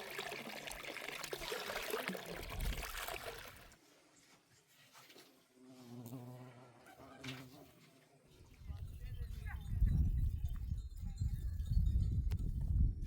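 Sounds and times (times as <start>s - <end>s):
liquid pouring and trickling: 0.0s - 3.8s.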